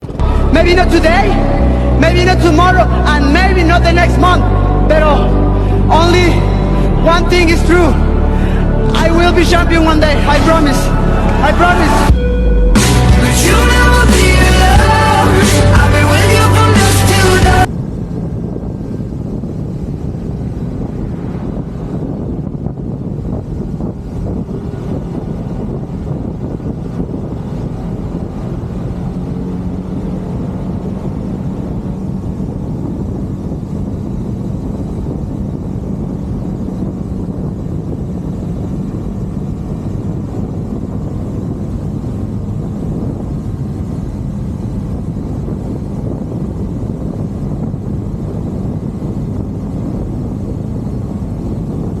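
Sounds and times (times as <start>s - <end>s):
motorcycle engine drone: 0.0s - 52.0s
road noise: 0.0s - 52.0s
wind rush: 0.0s - 52.0s.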